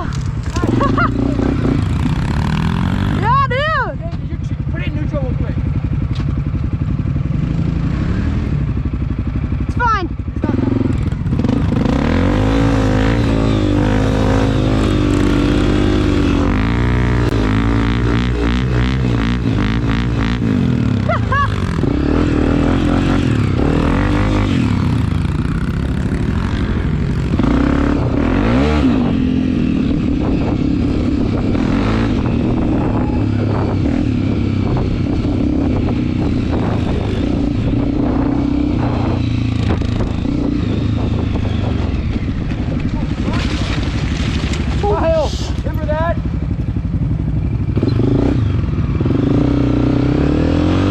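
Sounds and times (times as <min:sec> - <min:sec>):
bike rattling over rough ground: 0:00.0 - 0:03.2, 0:39.6 - 0:47.6
dirt bike engine revving: 0:00.0 - 0:03.9, 0:04.6 - 0:50.9.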